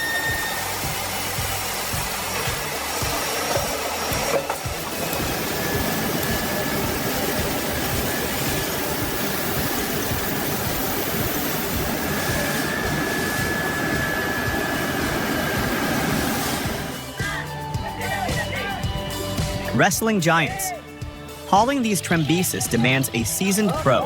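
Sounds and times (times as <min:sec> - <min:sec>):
heavy logging machinery running: 0:00.0 - 0:17.2.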